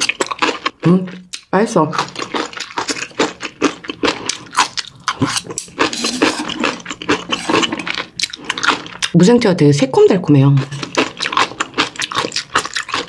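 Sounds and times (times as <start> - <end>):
crunchy chewing: 0.0 - 9.2, 10.6 - 13.0.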